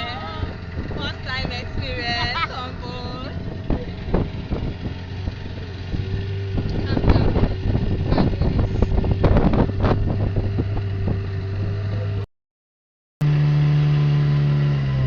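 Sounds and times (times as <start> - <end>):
wind on microphone: 0.0 - 12.2
motorboat engine running: 0.0 - 12.3, 13.2 - 15.0.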